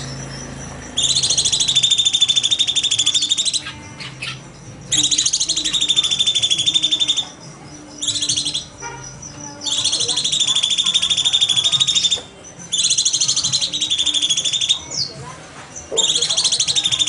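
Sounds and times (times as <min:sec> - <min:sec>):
bird singing buzzy trills: 0:00.0 - 0:17.0.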